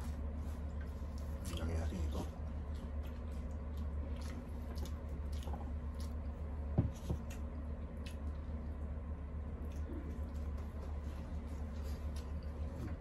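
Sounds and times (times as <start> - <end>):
steady low hum: 0.0 - 13.0
chewing and wet mouth smacks: 2.6 - 6.5, 7.1 - 8.9, 9.5 - 11.0.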